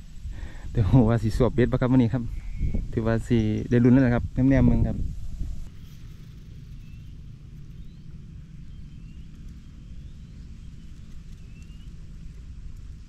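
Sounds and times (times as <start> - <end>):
low rumble: 0.0 - 13.0
faint rising bird chirps: 2.0 - 4.2, 5.5 - 13.0.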